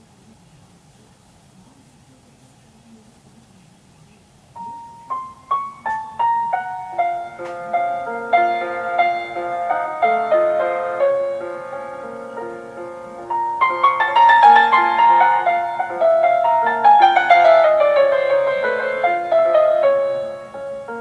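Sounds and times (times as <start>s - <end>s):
solo piano classical piece: 4.5s - 21.0s.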